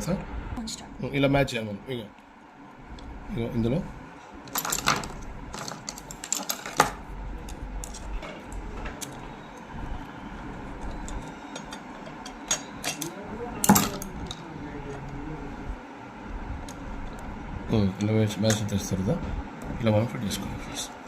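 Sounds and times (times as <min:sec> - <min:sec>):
metal parts clicking and clinking: 0:04.5 - 0:09.2, 0:10.8 - 0:14.4.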